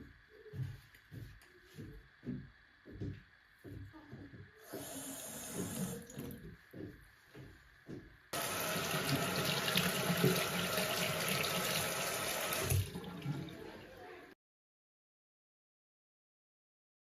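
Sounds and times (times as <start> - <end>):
tap water running into sink: 4.6 - 6.5, 8.4 - 13.9.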